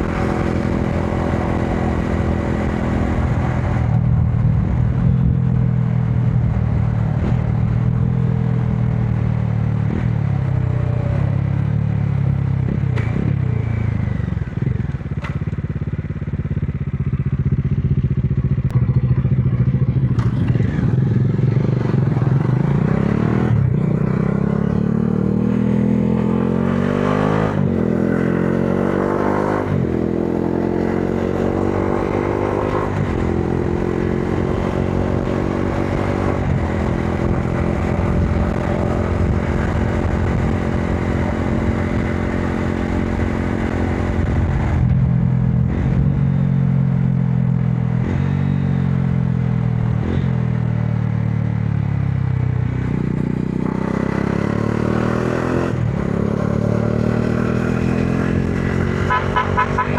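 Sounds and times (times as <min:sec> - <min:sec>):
motorcycle engine shifting gears: 0:06.2 - 0:59.9.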